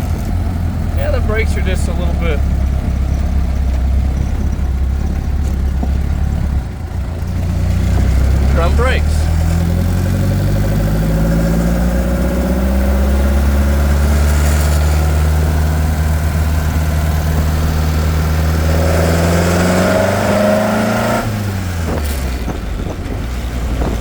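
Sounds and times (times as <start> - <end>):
car engine running under load: 0.0 - 24.0.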